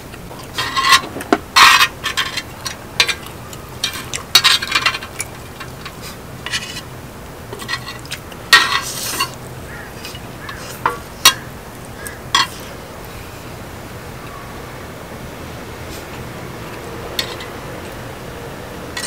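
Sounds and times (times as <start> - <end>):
utensils clinking on a dish: 0.4 - 6.9, 7.5 - 9.4, 10.0 - 12.7, 17.2 - 17.6.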